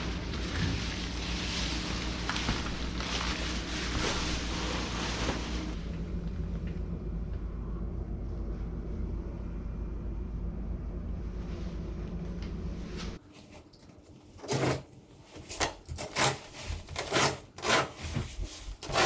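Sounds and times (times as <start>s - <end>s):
low machine drone: 0.0s - 13.2s.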